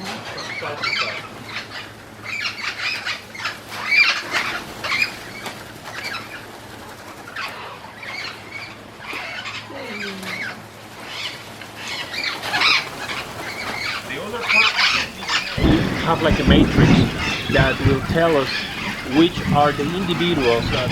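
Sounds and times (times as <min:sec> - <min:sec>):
parrots flapping wings: 0:12.7 - 0:20.9.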